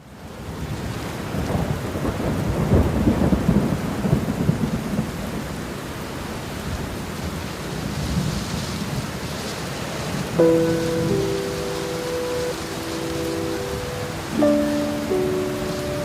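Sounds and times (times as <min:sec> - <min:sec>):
steady rain: 0:00.0 - 0:16.0
rolling thunder: 0:01.4 - 0:05.4.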